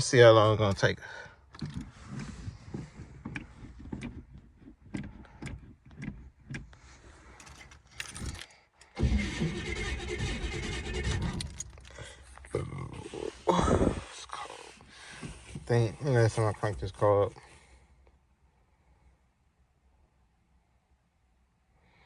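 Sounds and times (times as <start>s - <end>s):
car starter cranking engine: 3.1s - 12.6s
keys jangling: 7.4s - 8.6s.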